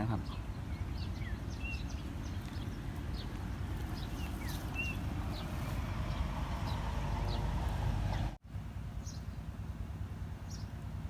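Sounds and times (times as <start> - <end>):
birds chirping: 0.0 - 8.4.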